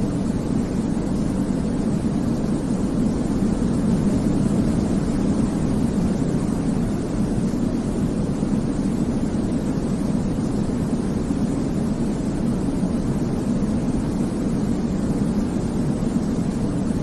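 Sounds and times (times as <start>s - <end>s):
deep rumbling hiss: 0.0s - 17.0s.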